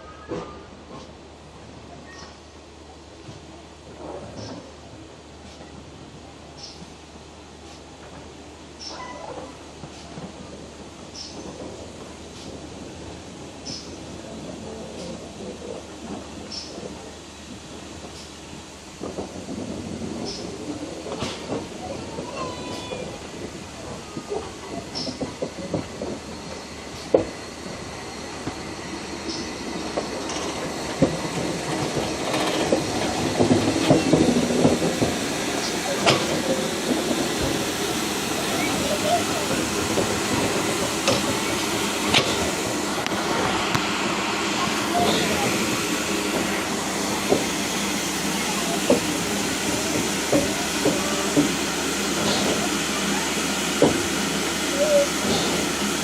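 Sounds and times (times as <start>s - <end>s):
train carriages rumbling on track: 0.0s - 56.0s
wheels clicking on rail joints: 18.0s - 56.0s.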